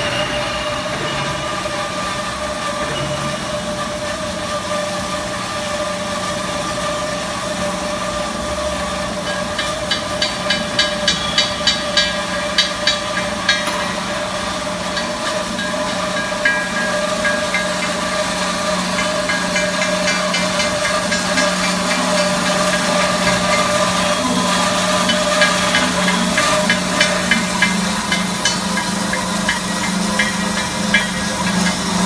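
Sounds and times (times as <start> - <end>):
band saw machine hum and whine: 0.0 - 32.0
sharp metallic ticks: 9.2 - 32.0.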